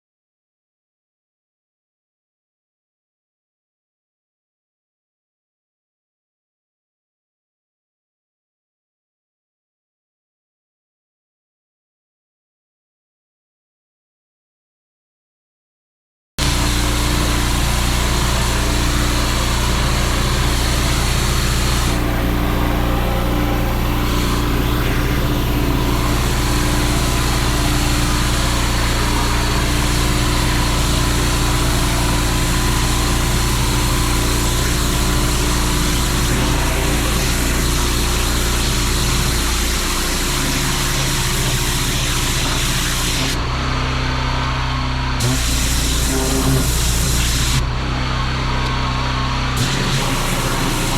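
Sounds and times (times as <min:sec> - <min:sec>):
water jet hissing on paving: 0:16.4 - 0:43.4, 0:45.2 - 0:47.6, 0:49.6 - 0:50.9
pressure washer engine running: 0:16.4 - 0:50.9.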